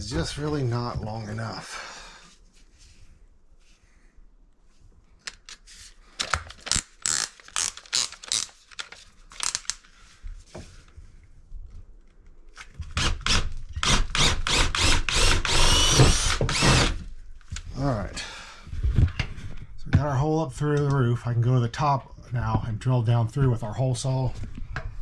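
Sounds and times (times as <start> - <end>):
power drill boring through wood: 13.0 - 17.1.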